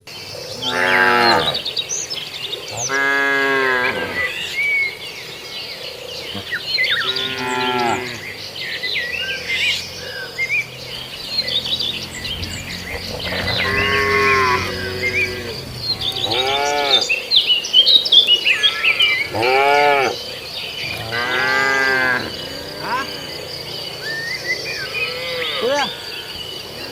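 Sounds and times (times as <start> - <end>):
cows mooing: 0.5 - 1.8, 2.7 - 4.6, 6.4 - 8.4, 10.0 - 17.3, 18.7 - 20.2, 20.8 - 23.5.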